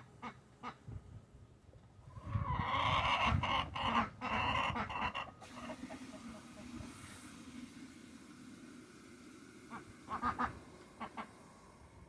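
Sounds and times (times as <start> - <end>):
hens calling loudly: 2.4 - 5.7.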